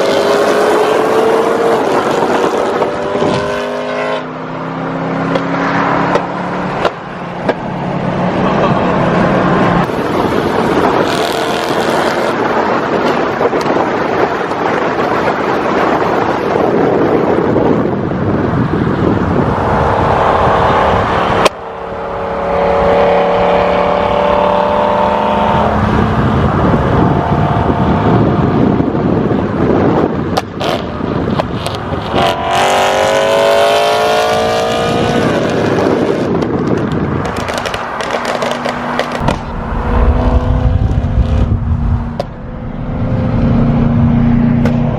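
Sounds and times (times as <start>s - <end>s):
car engine revving: 0.0s - 17.8s, 18.8s - 44.9s
exhaust pops: 35.4s - 42.5s.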